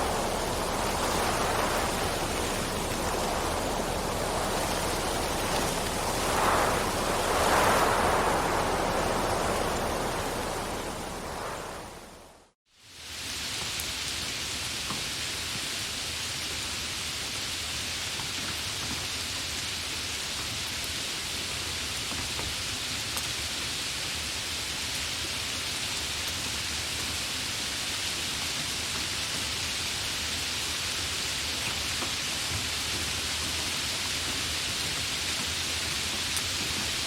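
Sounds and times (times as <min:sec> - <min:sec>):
rain drop ticks: 0:00.0 - 0:12.0
steady rain hiss: 0:00.0 - 0:37.0.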